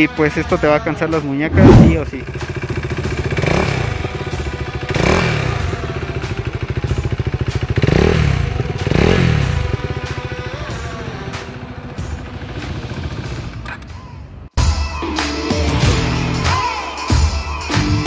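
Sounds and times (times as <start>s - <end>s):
engine revving on throttle blips: 1.5s - 13.0s
motorcycle engine idling: 1.9s - 14.4s.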